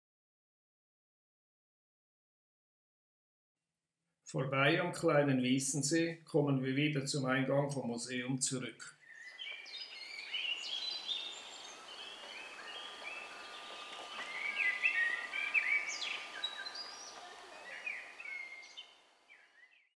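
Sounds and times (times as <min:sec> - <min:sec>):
background hiss: 0:04.3 - 0:19.7
songbirds singing: 0:08.9 - 0:19.9.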